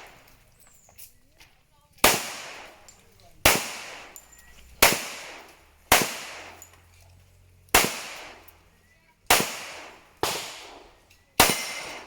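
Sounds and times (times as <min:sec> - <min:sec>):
pistol shots echoing: 0:02.0 - 0:06.7, 0:07.7 - 0:08.6, 0:09.3 - 0:12.0.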